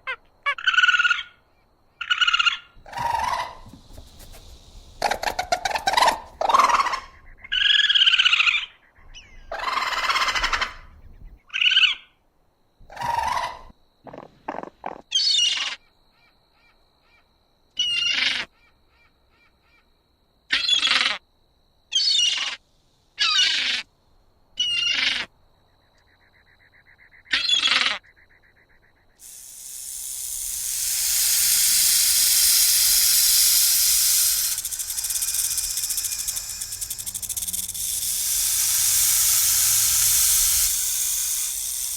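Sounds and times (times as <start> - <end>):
loud steady hiss: 2.8 - 8.1, 29.2 - 41.9.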